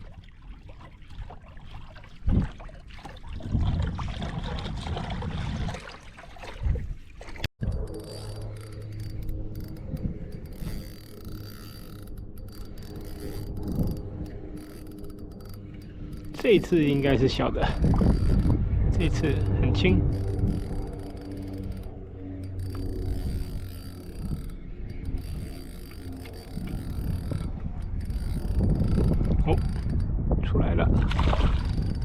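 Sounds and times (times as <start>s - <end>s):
water sloshing: 0.0s - 18.8s
fishing reel whirring: 7.6s - 30.3s, 31.2s - 32.0s.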